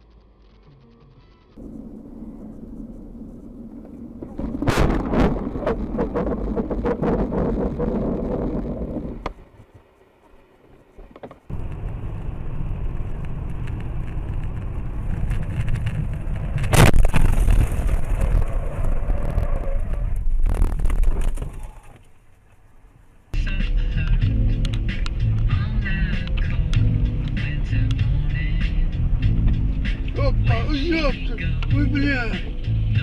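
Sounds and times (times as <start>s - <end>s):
rattling noise: 0.0s - 22.2s
car road and engine rumble: 0.0s - 33.0s
loud crash: 4.2s - 7.9s, 16.6s - 21.6s.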